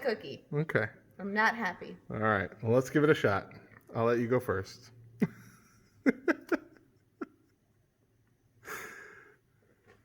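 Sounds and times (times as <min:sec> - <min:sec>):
person breathing: 0:08.6 - 0:09.9.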